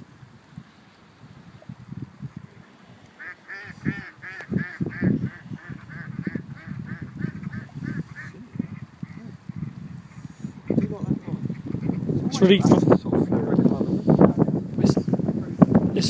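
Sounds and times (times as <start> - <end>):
bird calling quickly: 3.2 - 12.2
low thumps and buffeting: 3.7 - 16.0.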